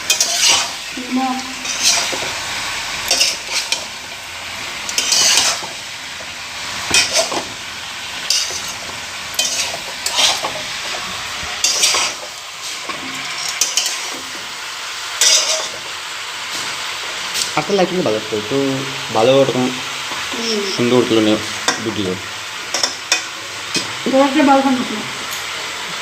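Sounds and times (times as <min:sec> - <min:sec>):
spoon scraping a pan: 0:00.0 - 0:02.4, 0:03.0 - 0:04.0, 0:04.9 - 0:05.8, 0:06.9 - 0:07.5, 0:08.2 - 0:14.5, 0:15.2 - 0:15.9
food sizzling in a pan: 0:00.0 - 0:26.0.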